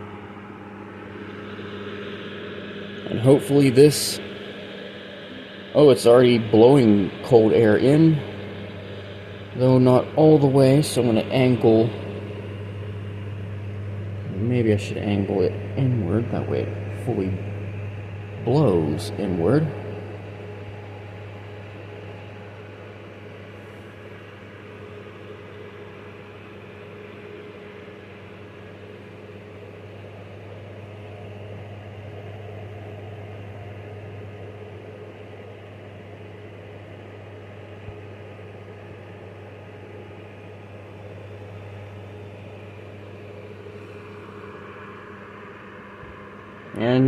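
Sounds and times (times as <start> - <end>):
electric motor hum: 0.0 - 47.0
rush of blown air: 0.9 - 19.2.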